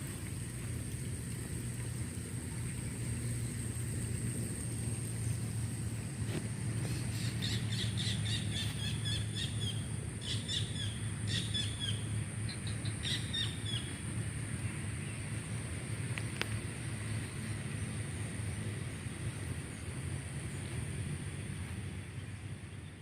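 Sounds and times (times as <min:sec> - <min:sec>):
songbird chirping: 0:07.1 - 0:14.0.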